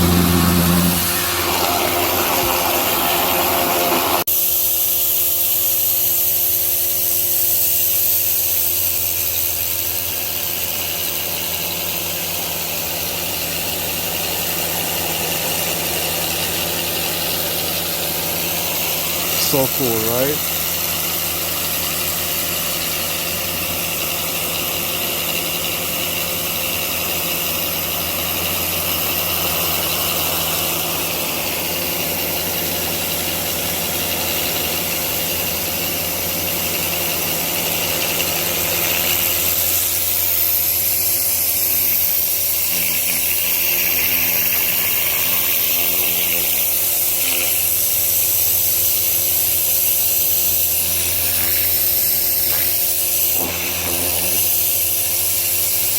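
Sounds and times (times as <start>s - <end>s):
pressure washer engine hum: 0.0s - 5.1s, 8.5s - 55.9s
hiss of water spray: 0.0s - 9.2s, 27.0s - 55.9s.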